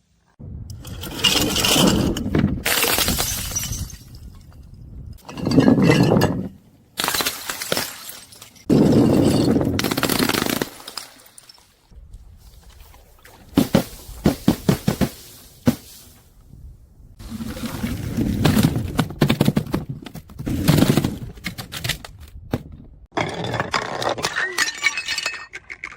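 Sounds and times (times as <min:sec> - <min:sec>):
glass bottles crushed and shattering: 0:01.0 - 0:04.6, 0:05.2 - 0:11.8, 0:23.1 - 0:25.9.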